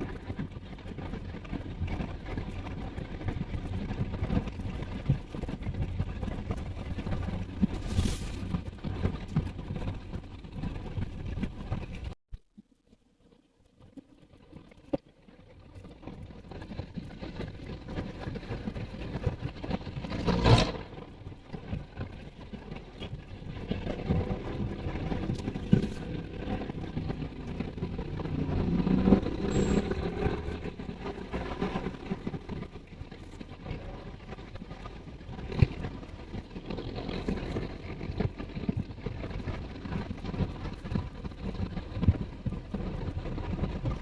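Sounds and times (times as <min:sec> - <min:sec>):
road noise rumble: 0:00.0 - 0:12.2, 0:19.0 - 0:44.0
vehicle passing: 0:24.2 - 0:32.4.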